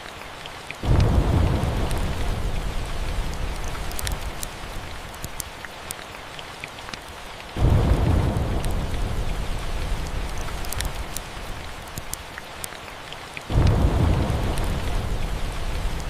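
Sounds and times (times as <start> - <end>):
rain hiss: 0.0 - 16.0
thunder rumbling: 0.8 - 5.0, 7.6 - 11.9, 13.5 - 16.0
wood fire crackling: 0.8 - 12.8, 13.4 - 16.0.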